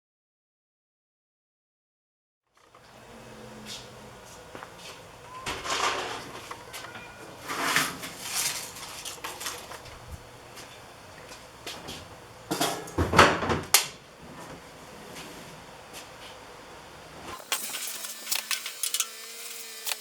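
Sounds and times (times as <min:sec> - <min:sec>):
handling scrapes and knocks: 0:04.9 - 0:09.9.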